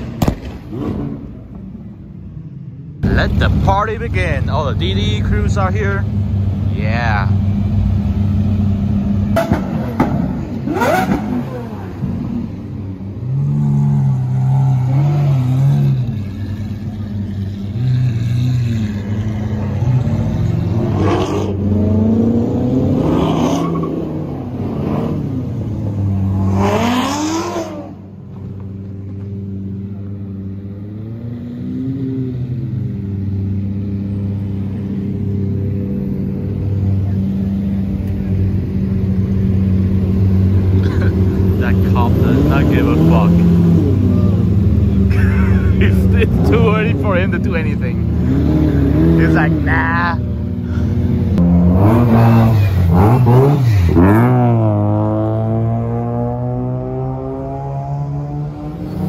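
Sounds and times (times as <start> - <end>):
engine revs: 3.0 - 59.0
supercar engines idling: 15.5 - 20.8, 32.7 - 48.3, 49.3 - 51.4.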